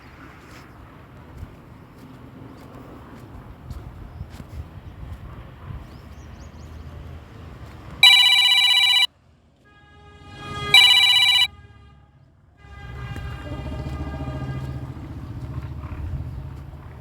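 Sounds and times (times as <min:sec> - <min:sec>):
telephone bell ringing: 0:08.0 - 0:09.1, 0:10.8 - 0:11.5.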